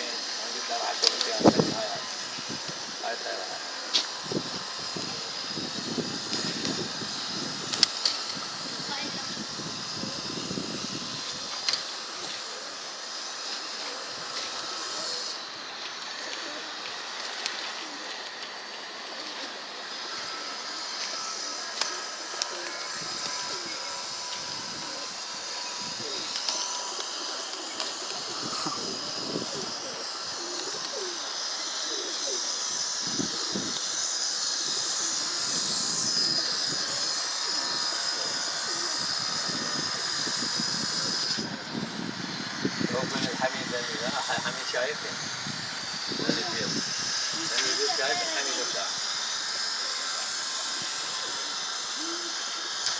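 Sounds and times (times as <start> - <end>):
background hiss: 0.0 - 52.9
pigeons cooing softly: 11.0 - 42.0, 49.7 - 52.9.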